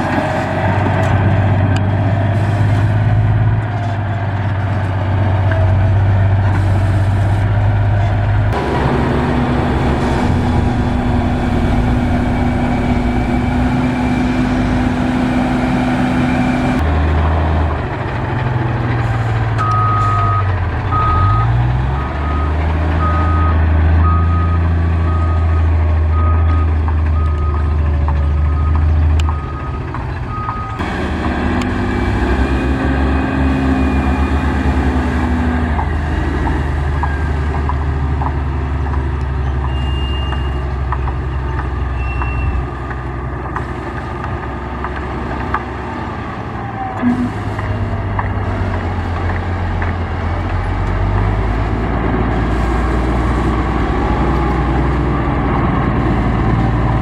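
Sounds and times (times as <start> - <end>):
construction machinery engine rumble: 0.0 - 57.0
reversing alarm beeping: 19.6 - 27.7, 28.5 - 30.8.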